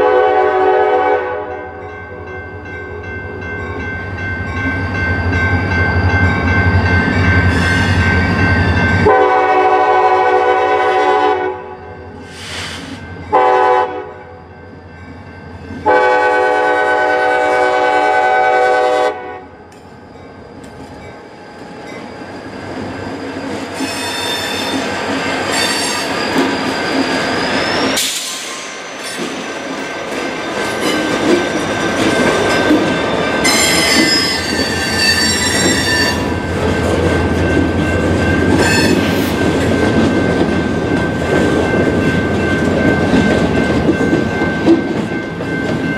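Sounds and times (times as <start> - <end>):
locomotive air horn blasts: 0.0 - 1.7, 9.0 - 11.8, 13.3 - 14.2, 15.8 - 19.5
train rumbling past: 0.0 - 45.9
wheels squealing: 21.6 - 29.3, 30.6 - 36.4.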